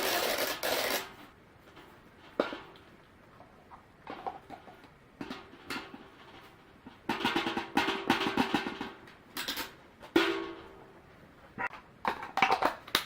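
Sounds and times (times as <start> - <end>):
rapid rattling and tapping: 4.1 - 10.6.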